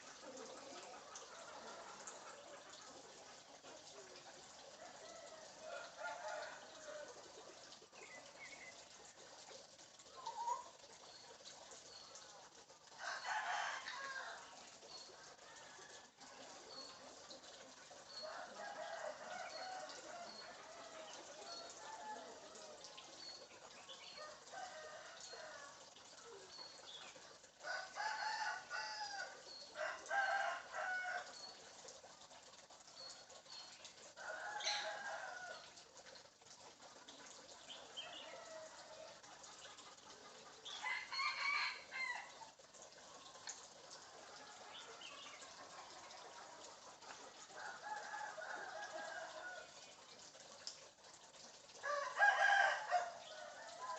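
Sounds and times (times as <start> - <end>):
bird clucking and crowing calls: 34.2 - 35.8.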